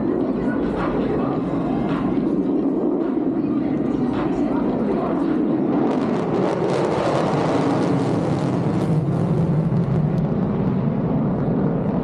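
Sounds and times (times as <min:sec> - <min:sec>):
jet engine at high power: 0:00.0 - 0:12.0.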